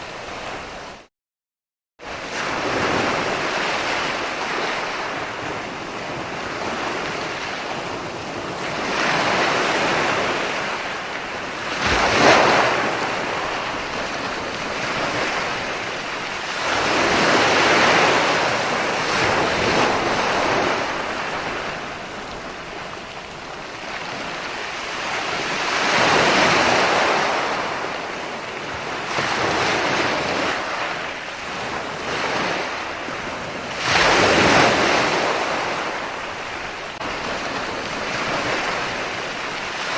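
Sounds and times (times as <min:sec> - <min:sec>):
ocean surf washing: 0:00.0 - 0:01.1, 0:02.0 - 0:39.9
wave breaking: 0:08.5 - 0:23.3, 0:29.0 - 0:39.9.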